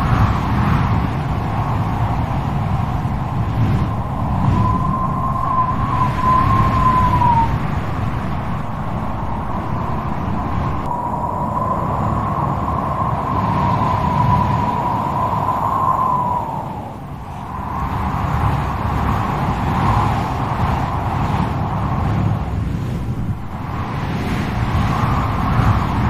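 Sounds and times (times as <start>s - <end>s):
high wavering wind whistle: 0.0s - 26.0s
strong wind rumbling: 0.0s - 26.0s.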